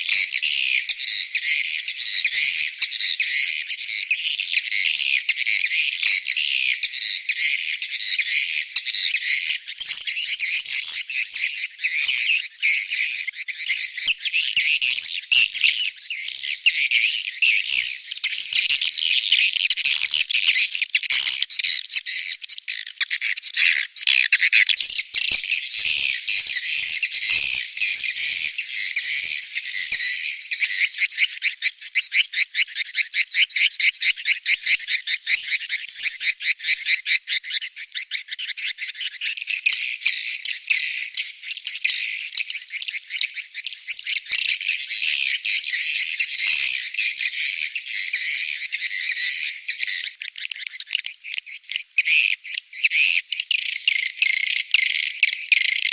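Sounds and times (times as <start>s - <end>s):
swiftlet chirping chatter: 24.6s - 31.0s, 34.2s - 37.0s.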